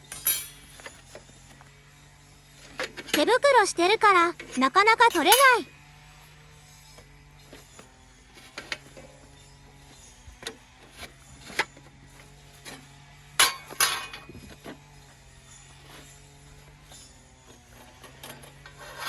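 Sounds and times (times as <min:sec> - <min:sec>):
metal gear clicks and clinks: 0:00.0 - 0:01.0, 0:05.1 - 0:05.6.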